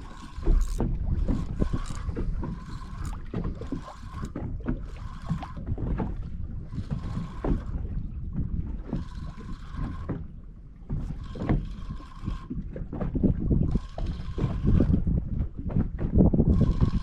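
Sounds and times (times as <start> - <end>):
boat engine rumble: 0.0 - 17.0
water slapping against hull: 0.0 - 17.0
wind on microphone: 0.0 - 17.0.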